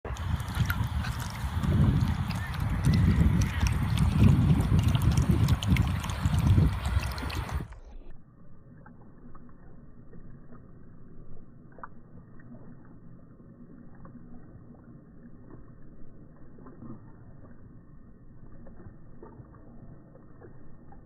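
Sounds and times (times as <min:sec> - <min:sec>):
water splashing: 0:00.0 - 0:08.1
dog lapping water slowed down: 0:00.0 - 0:21.0.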